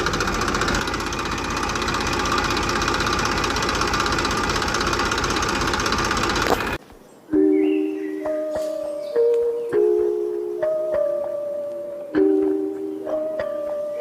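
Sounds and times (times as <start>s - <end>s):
small tractor engine running: 0.0s - 6.8s.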